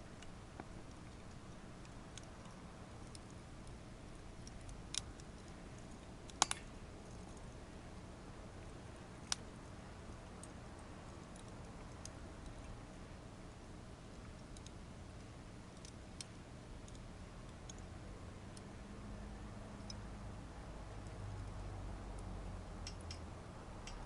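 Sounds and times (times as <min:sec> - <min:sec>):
fire crackling and popping: 0:00.0 - 0:17.9.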